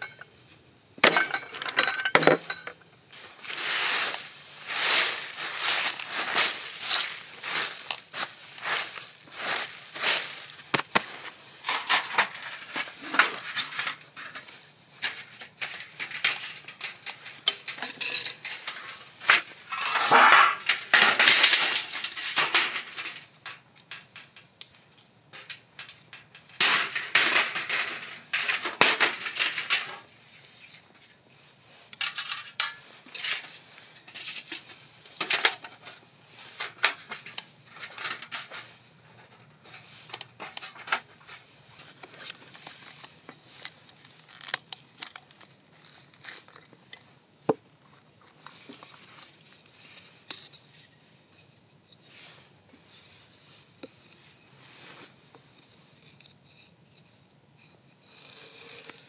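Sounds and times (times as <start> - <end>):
metal utensils clinking on pots: 0.0 - 0.3, 1.0 - 2.8, 11.7 - 24.5.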